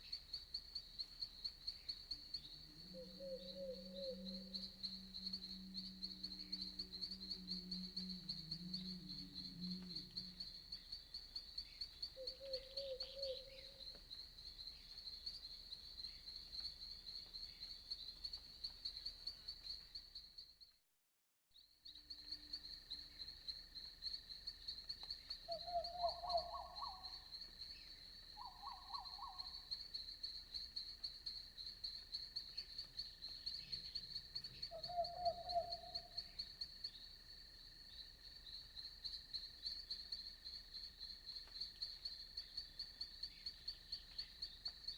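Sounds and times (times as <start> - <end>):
crickets chirping: 0.0 - 20.8, 21.6 - 44.9
trilled frog calls: 25.5 - 27.1, 34.6 - 36.3.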